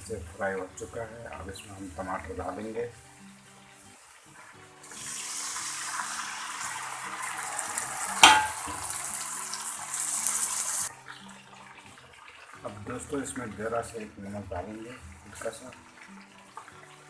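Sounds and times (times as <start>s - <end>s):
food sizzling in hot oil: 0.0s - 17.0s
soft background music: 0.0s - 17.0s
sharp knock: 8.2s - 8.8s.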